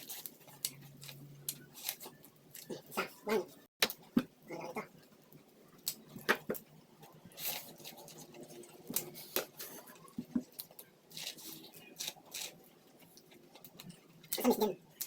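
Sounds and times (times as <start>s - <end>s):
corn being bitten and chewed: 0.0s - 3.3s, 7.3s - 15.0s.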